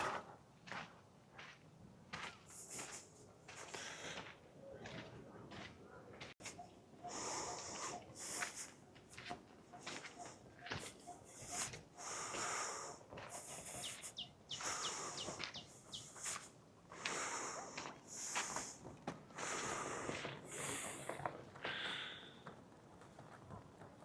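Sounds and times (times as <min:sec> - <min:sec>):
footsteps on trail: 0:00.0 - 0:06.6, 0:07.2 - 0:21.8
person breathing hard: 0:02.6 - 0:04.4, 0:07.0 - 0:08.8, 0:10.2 - 0:22.5.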